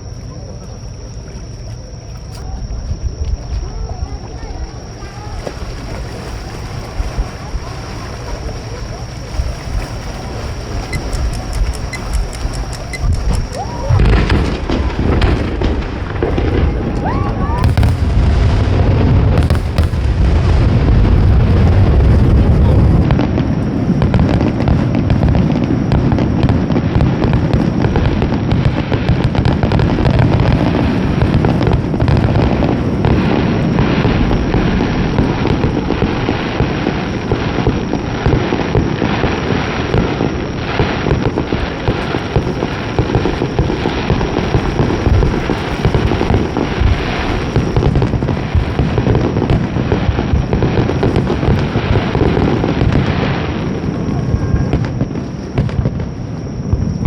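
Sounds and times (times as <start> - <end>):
fireworks booming and crackling: 0.0 - 57.0.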